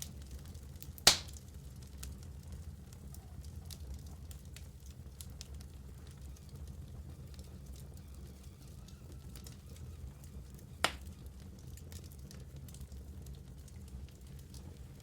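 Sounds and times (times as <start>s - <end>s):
wood fire crackling: 0.0s - 15.0s
loud sharp pop: 1.1s - 1.4s.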